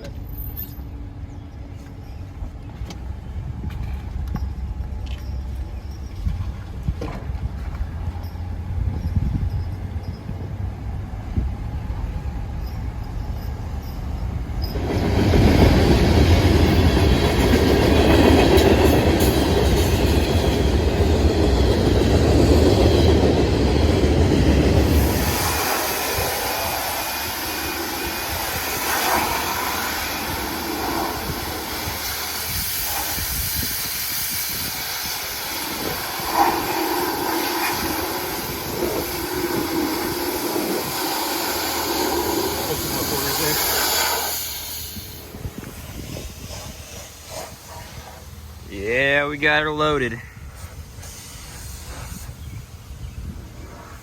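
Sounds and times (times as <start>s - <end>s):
truck engine and tyre rumble: 0.0s - 14.8s.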